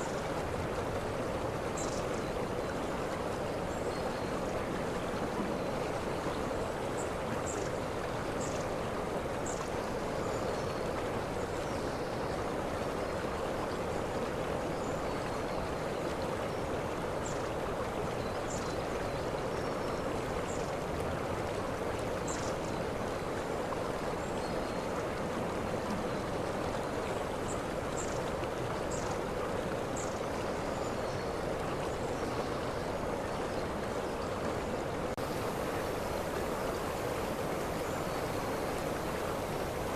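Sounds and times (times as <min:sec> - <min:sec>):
waterfall rushing: 0:35.2 - 0:39.9.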